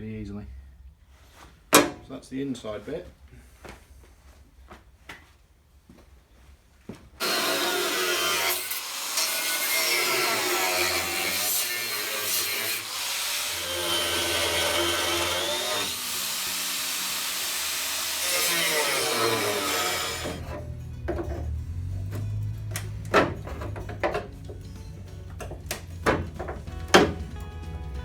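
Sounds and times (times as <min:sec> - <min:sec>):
angle grinder whining on steel: 0:07.2 - 0:20.8.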